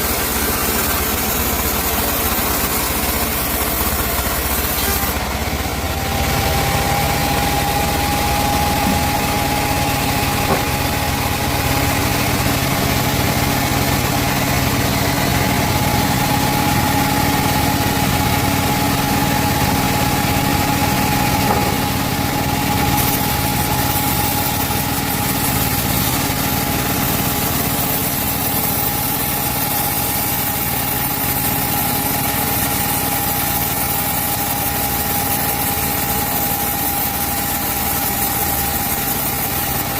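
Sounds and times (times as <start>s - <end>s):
band sawmill hum and whine: 0.0s - 39.9s.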